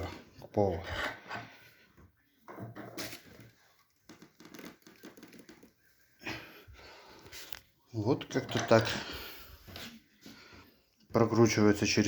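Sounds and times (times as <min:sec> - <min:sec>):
wooden floorboards creaking: 0:02.4 - 0:05.8.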